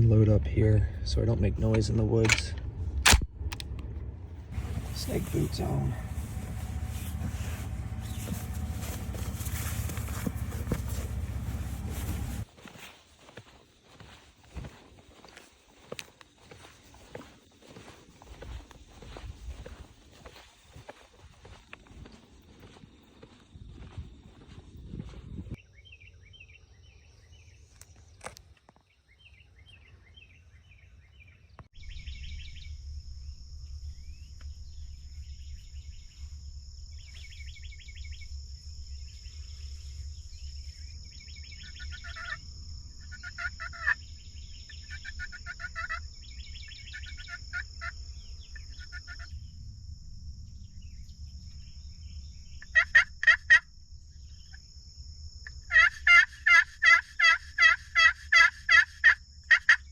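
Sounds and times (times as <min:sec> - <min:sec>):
steady high whine: 0:00.0 - 0:12.5, 0:31.8 - 0:43.2, 0:48.0 - 0:55.4
wild turkeys gobbling: 0:41.6 - 0:42.4, 0:43.0 - 0:44.0, 0:44.7 - 0:46.1, 0:46.8 - 0:48.0, 0:48.6 - 0:49.3, 0:52.6 - 0:53.6, 0:55.5 - 0:59.9.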